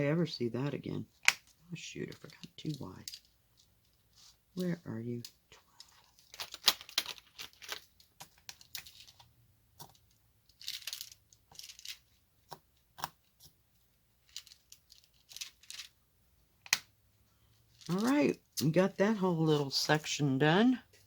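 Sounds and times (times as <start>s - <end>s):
plastic beads rattling and clicking: 4.6s - 13.6s, 14.2s - 16.0s, 17.7s - 18.7s.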